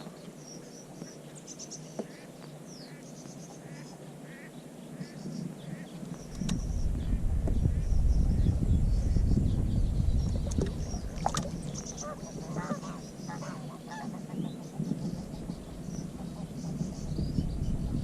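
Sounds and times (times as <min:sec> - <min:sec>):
small birds chirping: 0:00.0 - 0:18.0
wind rumbling on microphone: 0:04.9 - 0:18.0
goose honking: 0:12.0 - 0:14.3.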